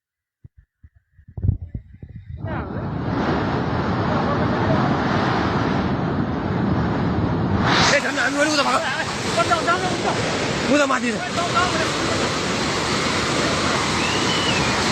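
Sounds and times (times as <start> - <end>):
thumps on microphone: 0.4 - 2.5
floodwater rushing: 7.8 - 14.9.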